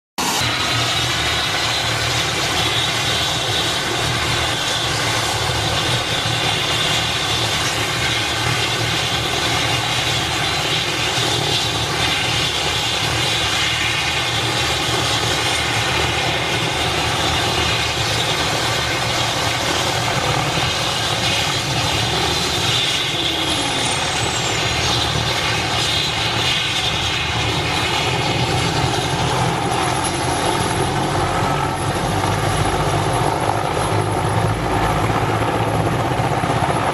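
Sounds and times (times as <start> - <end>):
helicopter engines whining: 0.2 - 36.9
helicopter rotor noise: 0.2 - 36.9
high tone falling: 22.2 - 25.0.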